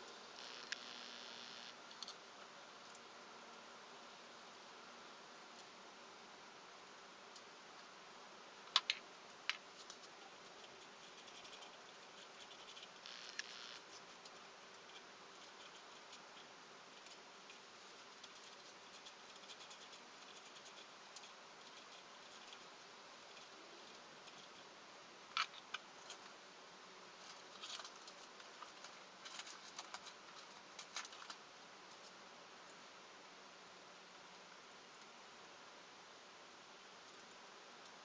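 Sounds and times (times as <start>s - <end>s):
faint scattered clicks and ticks: 0.0s - 3.1s, 8.6s - 33.0s, 33.6s - 35.4s, 37.0s - 38.0s
low steady hiss: 0.0s - 38.0s.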